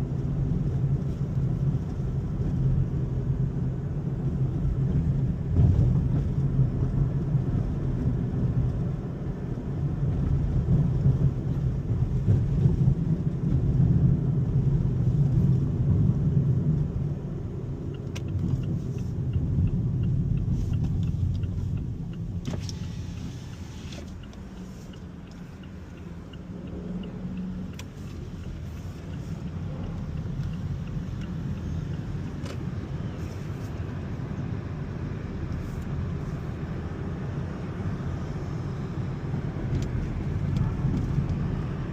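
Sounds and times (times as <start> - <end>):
road and engine rumble: 0.0 - 41.9
faint regular ticking: 17.8 - 32.8.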